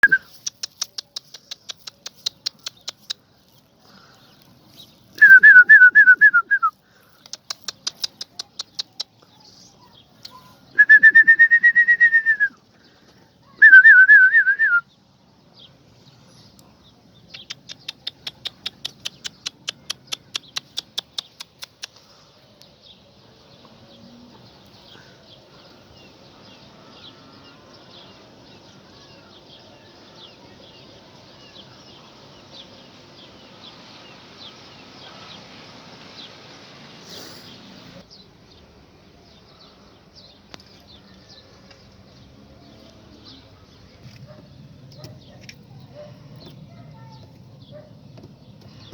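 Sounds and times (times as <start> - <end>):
whistled notes: 0.0 - 0.3, 5.2 - 6.7, 10.8 - 12.5, 13.6 - 14.8.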